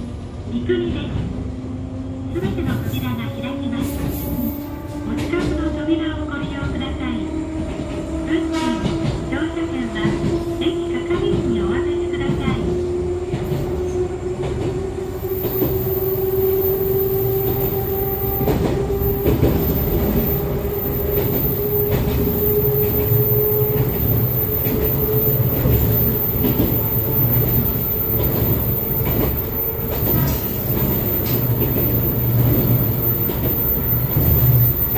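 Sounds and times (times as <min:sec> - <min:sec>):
train wheels rumbling: 0:00.8 - 0:34.9
train motor whine: 0:12.9 - 0:34.9
wheels clacking over rail joints: 0:18.3 - 0:34.9.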